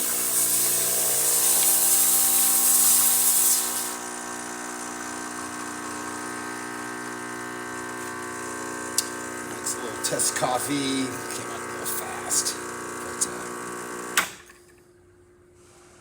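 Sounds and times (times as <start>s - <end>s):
loud hiss: 0.0s - 4.0s
espresso machine pump humming: 0.0s - 14.5s.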